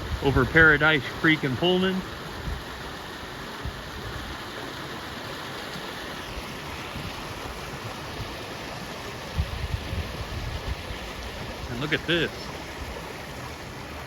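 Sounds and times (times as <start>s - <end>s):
wind buffeting microphone: 0.0s - 0.9s, 2.3s - 2.9s, 9.3s - 11.7s
flooded creek rushing: 0.0s - 14.0s.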